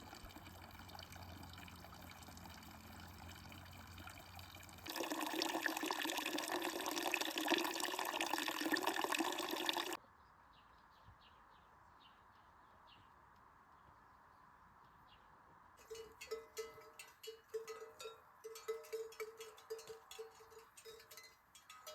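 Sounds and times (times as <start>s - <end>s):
rushing water: 0.0s - 10.0s.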